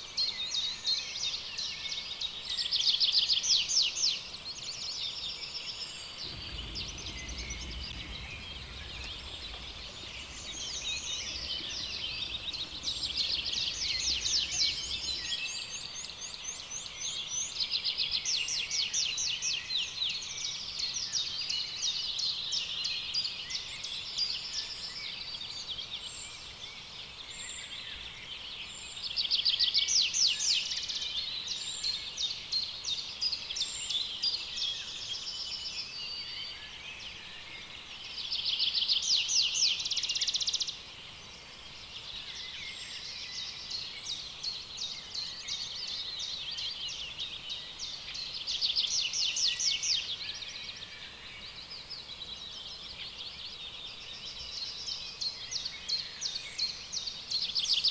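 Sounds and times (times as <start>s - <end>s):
birds singing in chorus: 0.0s - 57.9s
low rumble: 6.2s - 15.4s.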